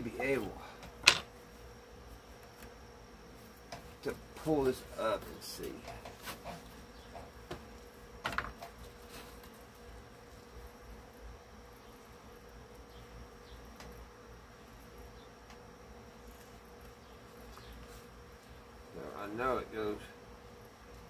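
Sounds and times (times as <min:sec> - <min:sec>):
faint buzzing hum: 0:00.0 - 0:21.0.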